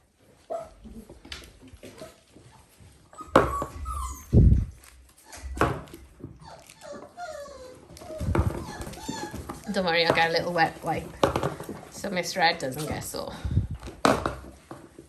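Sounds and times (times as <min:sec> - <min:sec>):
puppies yapping and whimpering: 0:00.4 - 0:01.2, 0:01.9 - 0:10.6.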